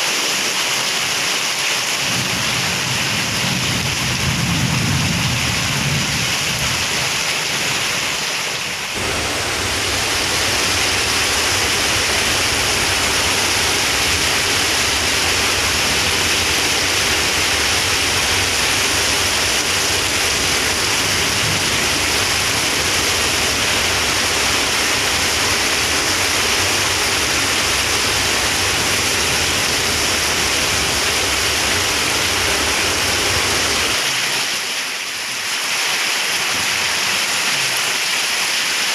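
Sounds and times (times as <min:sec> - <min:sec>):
heavy rain pouring: 0:00.0 - 0:38.9
low thunder rumble: 0:02.1 - 0:07.2, 0:08.9 - 0:34.0.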